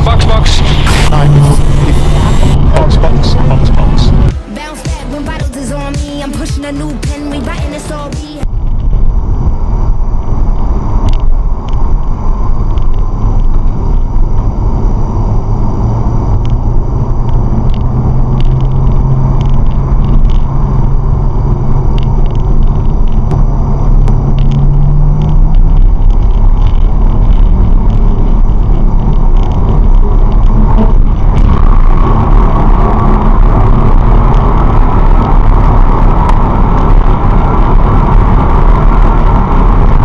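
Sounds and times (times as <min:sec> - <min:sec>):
car engine and road noise: 0:00.0 - 0:40.0.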